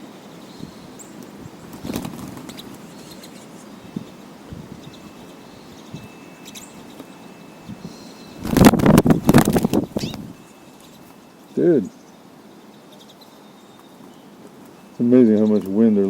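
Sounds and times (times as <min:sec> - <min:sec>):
faint high bird chirps: 0:00.1 - 0:16.0
small birds' wings fluttering: 0:00.2 - 0:11.5.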